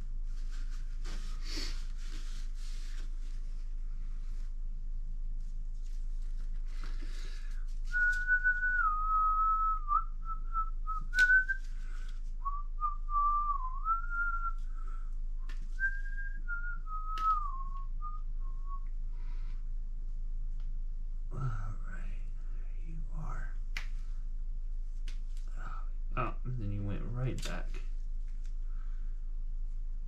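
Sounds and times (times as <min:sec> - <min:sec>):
person whistling a tune: 0:07.9 - 0:15.1, 0:15.7 - 0:18.9.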